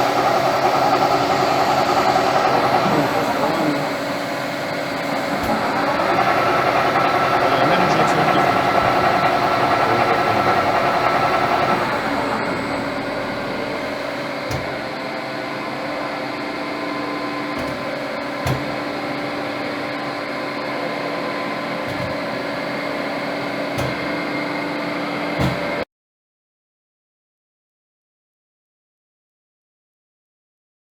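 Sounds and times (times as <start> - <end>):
lathe mechanical whir: 0.0 - 25.8.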